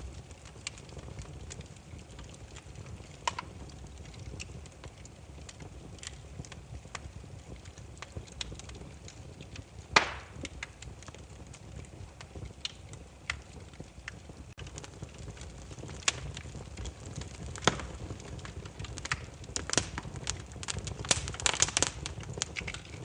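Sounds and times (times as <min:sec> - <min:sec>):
firewood crackling: 0:00.0 - 0:23.0
low rumble of flame: 0:00.0 - 0:23.0
wood popping and cracking: 0:00.0 - 0:23.0.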